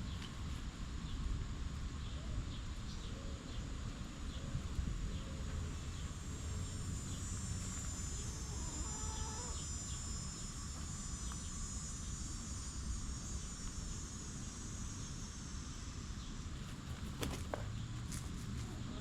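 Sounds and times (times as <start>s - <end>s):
high-pitched insect drone: 0.9s - 18.1s
chickens clucking: 8.3s - 9.6s.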